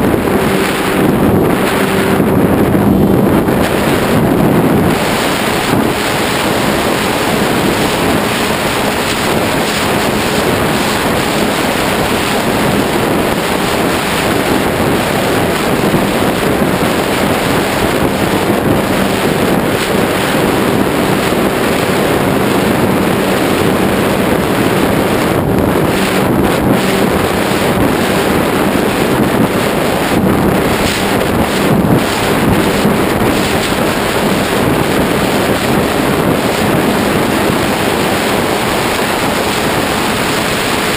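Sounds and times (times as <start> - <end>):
electric motor and propeller hum: 0.0 - 40.9
wind rushing over microphone: 0.0 - 40.9.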